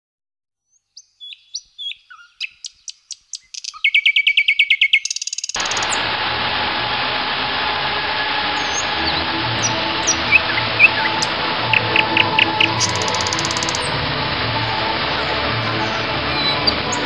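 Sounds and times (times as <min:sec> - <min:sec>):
songbird chirps and trills: 0:00.6 - 0:05.9, 0:08.7 - 0:14.0
fountain jets splashing: 0:05.6 - 0:17.0.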